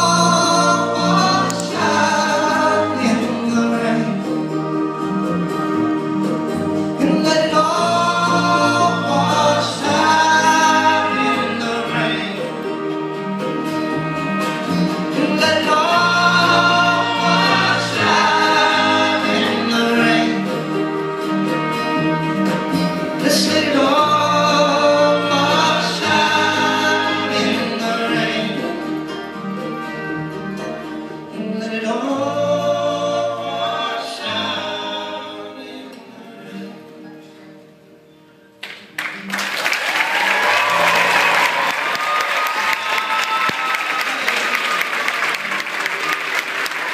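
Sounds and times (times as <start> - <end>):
live band music: 0.0 - 46.9
voices singing together: 7.4 - 12.8, 15.1 - 20.8, 23.2 - 29.0, 31.8 - 36.7.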